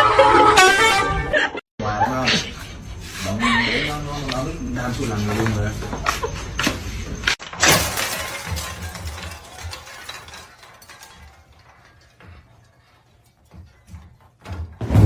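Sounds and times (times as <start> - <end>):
clinks and clatter: 4.3 - 14.8
loud breaking crash: 7.4 - 12.9, 14.7 - 15.0.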